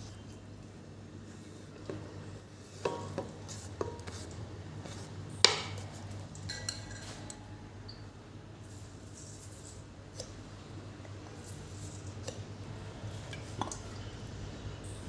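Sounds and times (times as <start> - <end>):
dishes and utensils clinking: 5.4 - 7.6.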